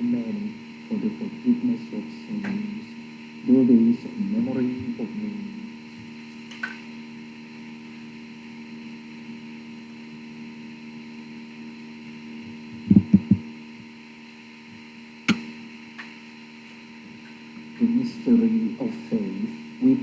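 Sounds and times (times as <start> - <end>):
electrical hum: 0.0 - 20.0
dull thumps: 12.8 - 13.4.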